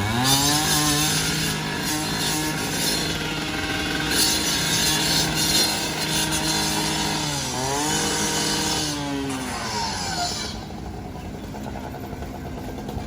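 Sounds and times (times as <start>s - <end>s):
saw cutting hiss: 0.0s - 10.9s
two-stroke power saw running: 0.0s - 13.0s.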